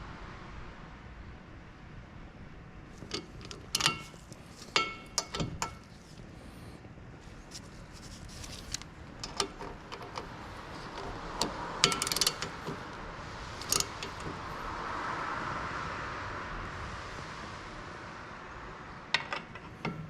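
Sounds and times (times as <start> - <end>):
broad rushing noise: 0.0 - 20.0
metal tools clinking: 3.0 - 6.2, 8.3 - 12.8, 13.6 - 14.3.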